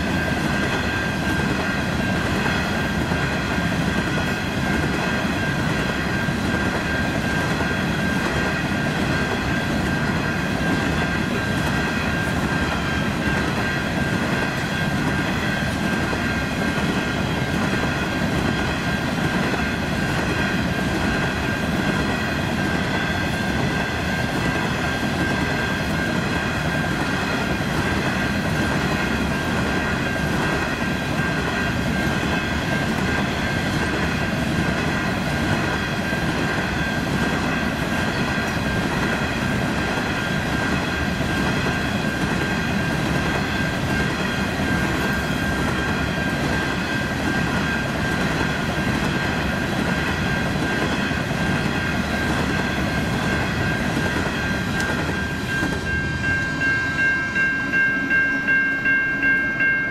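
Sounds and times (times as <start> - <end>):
high-pitched ringing tone: 49.1 - 59.9.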